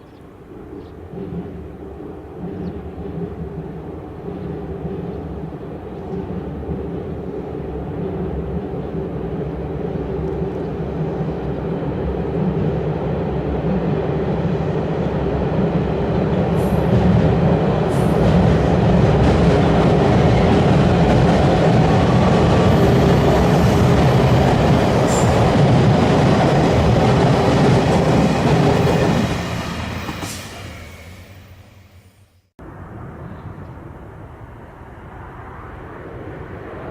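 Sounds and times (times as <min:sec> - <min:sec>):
train rumbling over bridge: 0:00.0 - 0:36.9.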